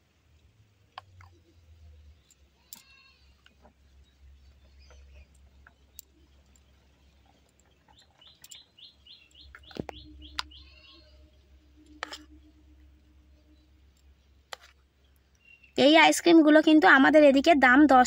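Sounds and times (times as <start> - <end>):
faint low hum: 0.0 - 18.0
bird chirping: 1.0 - 16.1.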